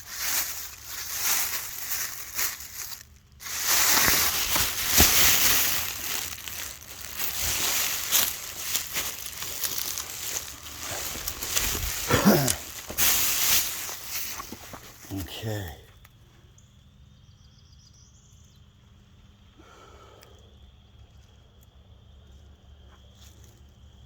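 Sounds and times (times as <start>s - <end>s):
rustling and crunching brush: 0.0s - 15.5s
short falling grunt: 12.0s - 12.7s.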